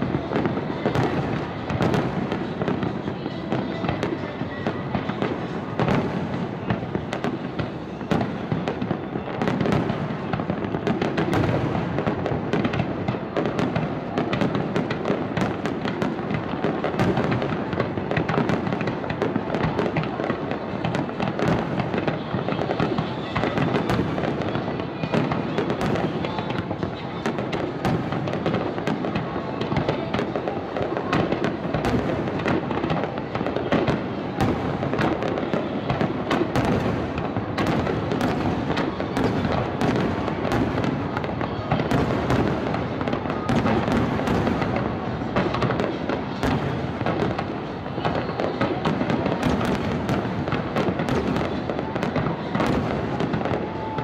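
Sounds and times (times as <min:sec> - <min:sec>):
fireworks bangs: 0:00.0 - 0:54.0.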